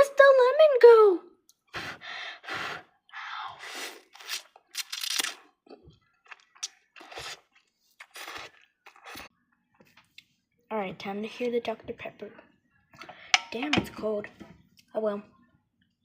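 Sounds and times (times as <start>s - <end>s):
crunchy chewing: 4.0s - 9.3s.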